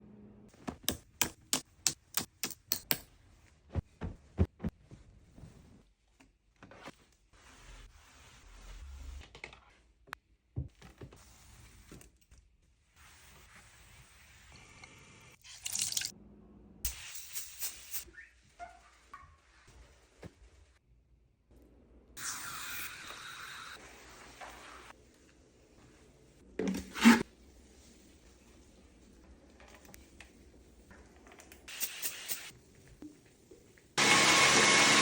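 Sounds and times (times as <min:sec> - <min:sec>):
soft rustling: 0:03.2 - 0:08.6.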